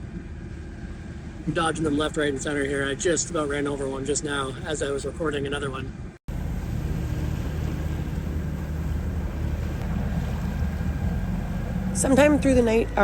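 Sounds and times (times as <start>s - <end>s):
boat engine humming: 0.0s - 13.0s
wind and water hiss: 0.0s - 13.0s.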